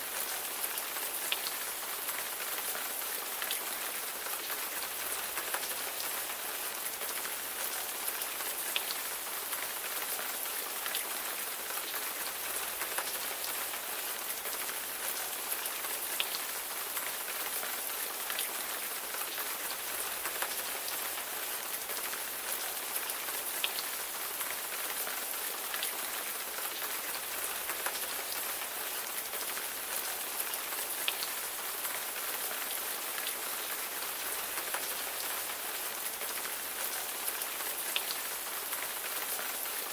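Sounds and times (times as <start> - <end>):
raindrops ticking on a surface: 0.0 - 39.9.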